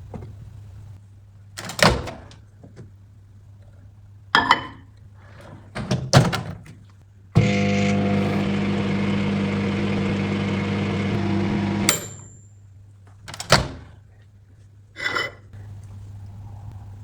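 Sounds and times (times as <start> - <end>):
microwave oven humming: 7.4 - 12.2.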